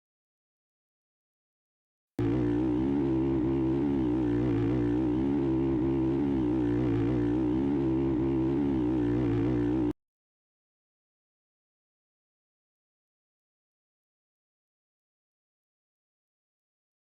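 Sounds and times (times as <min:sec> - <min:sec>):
motocross bike engine: 0:02.2 - 0:10.0.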